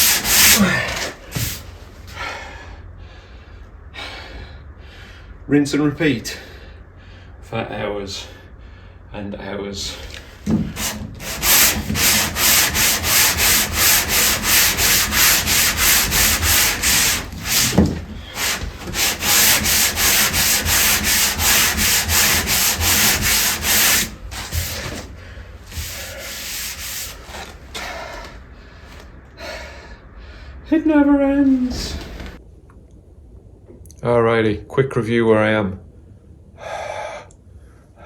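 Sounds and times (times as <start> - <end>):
hand sanding wood: 0.0 - 1.8, 10.3 - 28.3.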